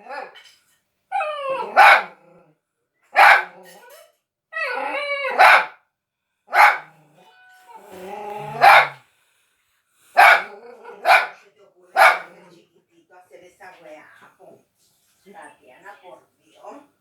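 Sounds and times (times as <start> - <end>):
dog barking: 1.7 - 2.2, 3.2 - 3.8, 5.3 - 5.8, 6.5 - 6.9, 8.5 - 9.0, 10.2 - 11.4, 12.0 - 12.4
dog whining: 3.5 - 5.5, 7.8 - 9.0.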